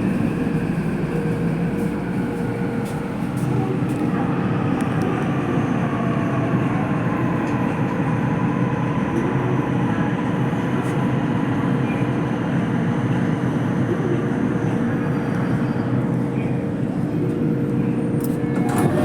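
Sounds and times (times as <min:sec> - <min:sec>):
train wheels rumbling: 0:00.0 - 0:05.1.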